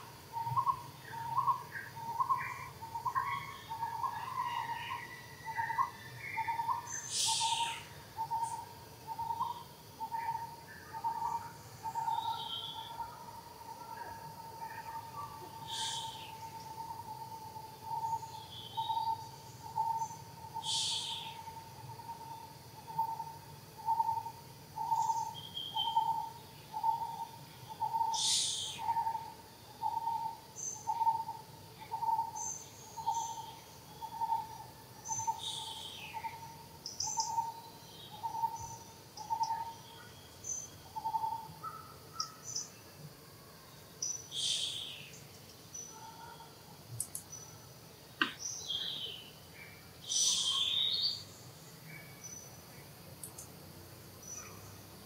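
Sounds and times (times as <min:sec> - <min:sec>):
sharp bird calls: 0:00.4 - 0:08.6, 0:18.0 - 0:21.6, 0:23.9 - 0:29.2.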